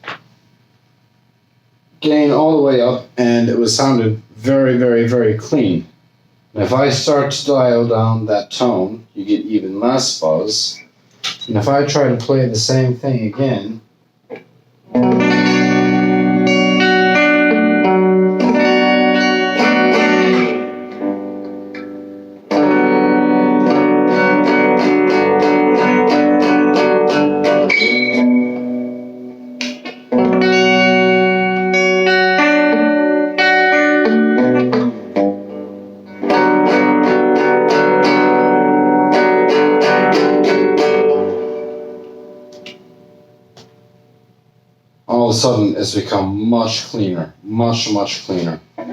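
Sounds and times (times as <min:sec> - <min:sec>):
clean electric guitar chords: 0:14.9 - 0:44.2.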